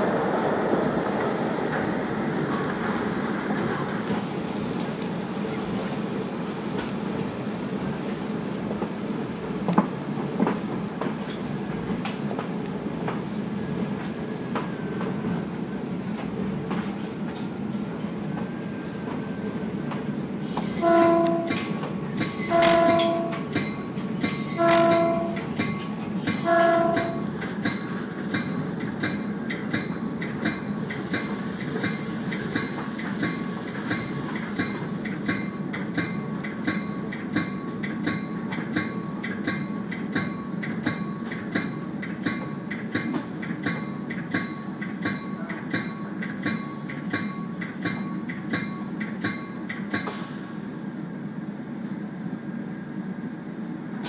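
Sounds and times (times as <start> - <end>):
train rumbling: 0.0 - 54.0
train horn: 20.8 - 21.7, 22.4 - 23.5, 24.6 - 25.5, 26.4 - 27.3.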